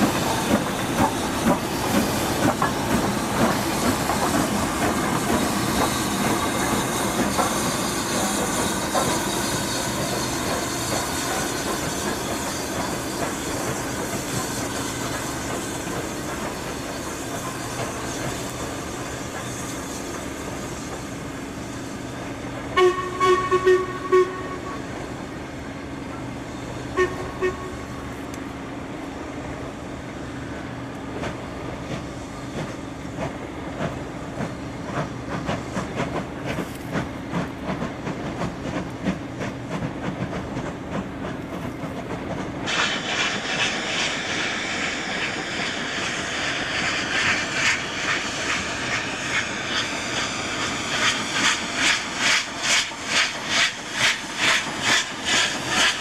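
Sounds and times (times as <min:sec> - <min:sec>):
train horn toots: 0:22.7 - 0:25.0, 0:26.9 - 0:27.9.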